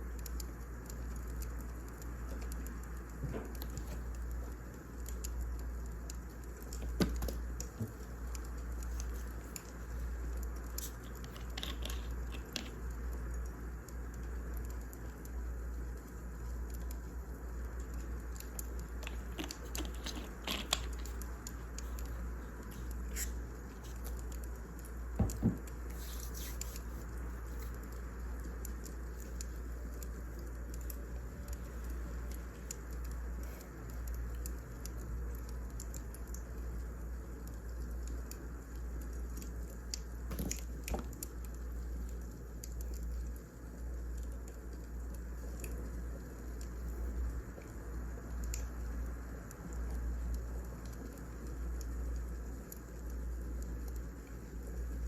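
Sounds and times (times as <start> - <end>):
steady low hum: 0.0 - 55.0
wood fire crackling: 0.0 - 55.0.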